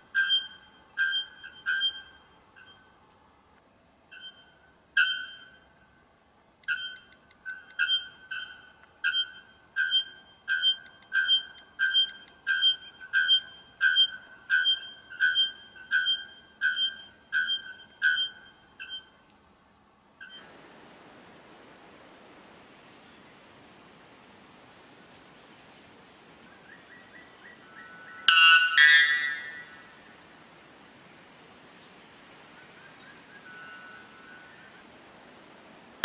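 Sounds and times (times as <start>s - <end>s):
bird bell-like call: 0.1s - 2.9s, 4.1s - 5.7s, 6.7s - 19.1s, 28.2s - 29.9s
bird short metallic notes: 4.1s - 5.6s, 6.7s - 19.1s, 28.3s - 29.8s.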